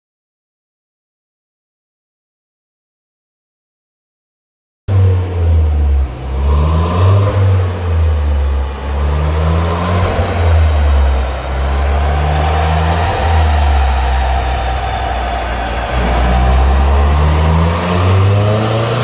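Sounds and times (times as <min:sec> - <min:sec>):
car engine revving: 0:04.9 - 0:19.0.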